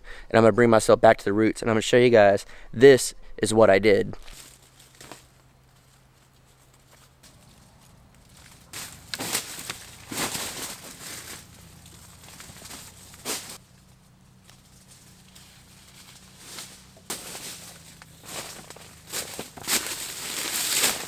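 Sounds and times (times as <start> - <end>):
rustling and crunching in dry leaves: 4.2 - 21.0.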